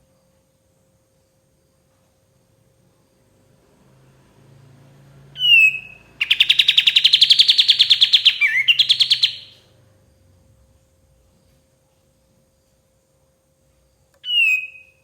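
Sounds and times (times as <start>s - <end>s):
bird singing whistle and trill: 5.4s - 9.6s, 14.2s - 15.0s.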